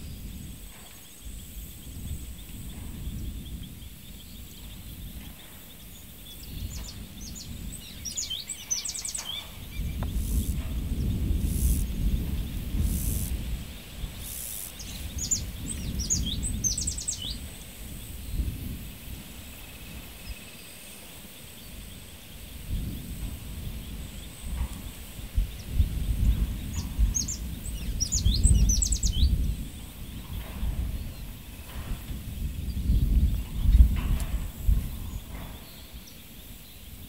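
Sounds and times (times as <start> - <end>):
gusting wind rumble: 0.0 - 37.0
small bird singing: 0.0 - 37.0.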